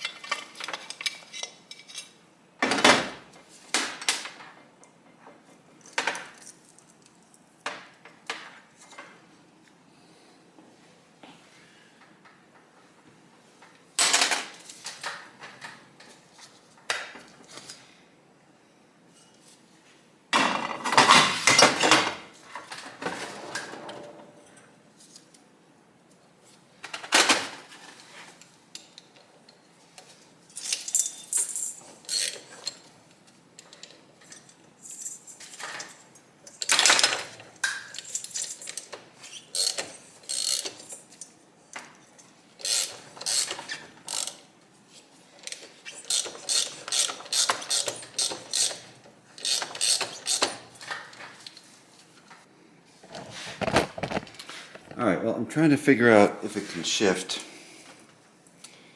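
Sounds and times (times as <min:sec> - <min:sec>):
metal tools and parts clattering: 0:00.0 - 0:02.2, 0:30.5 - 0:32.9, 0:33.8 - 0:41.2.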